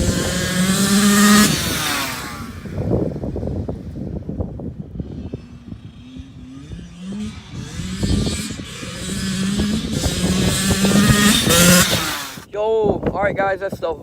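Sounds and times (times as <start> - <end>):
dirt bike engine revving: 0.0 - 12.5.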